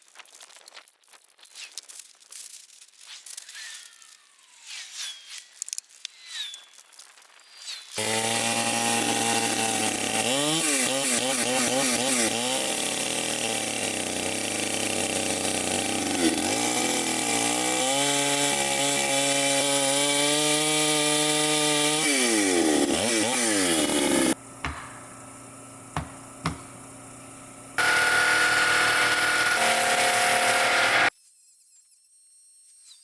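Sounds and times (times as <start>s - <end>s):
circular sawmill cutting: 8.0s - 31.1s.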